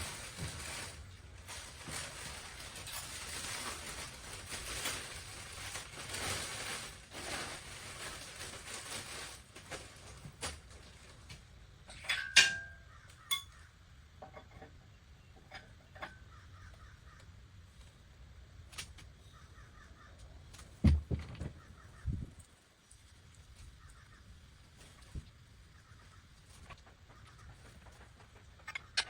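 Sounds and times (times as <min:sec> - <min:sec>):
metal clank with ring: 0:12.0 - 0:13.6
dull thumps: 0:20.8 - 0:21.7.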